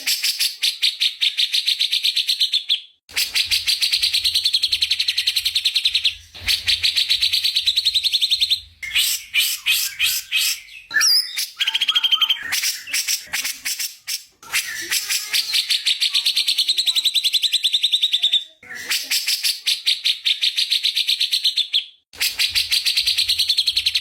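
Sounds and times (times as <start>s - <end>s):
songbird singing: 7.1s - 13.0s.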